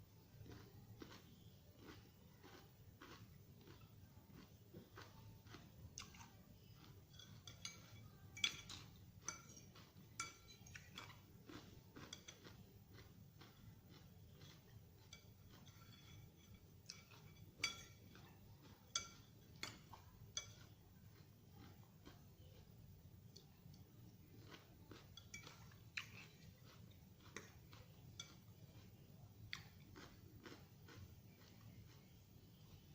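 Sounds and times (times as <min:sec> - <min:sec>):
faint chewing: 0:00.2 - 0:32.9
utensils clinking against a dish: 0:06.9 - 0:12.6, 0:13.9 - 0:20.8, 0:25.0 - 0:28.9.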